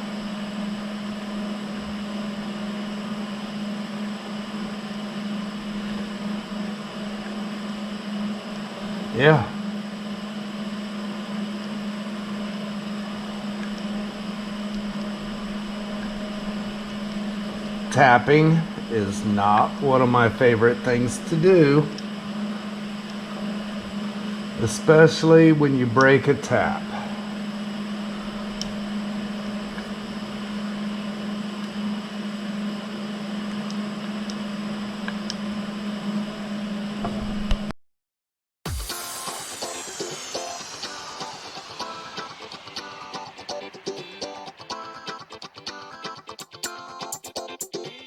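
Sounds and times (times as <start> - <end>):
machine hum with hiss: 0.0 - 37.7, 38.7 - 47.2
hiss: 38.7 - 43.6.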